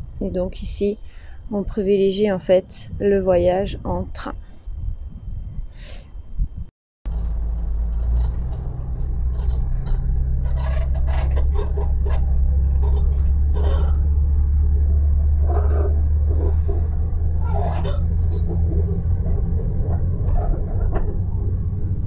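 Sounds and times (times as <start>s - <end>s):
short rattles: 7.1s - 22.0s
train rumbling: 7.1s - 22.0s.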